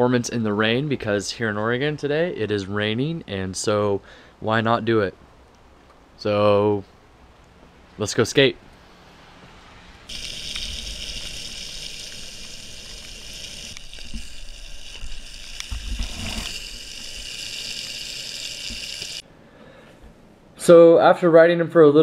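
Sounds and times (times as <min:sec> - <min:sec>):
hiss of water spray: 0:10.1 - 0:19.2
longboard wheels rolling on wet pavement: 0:10.1 - 0:19.2.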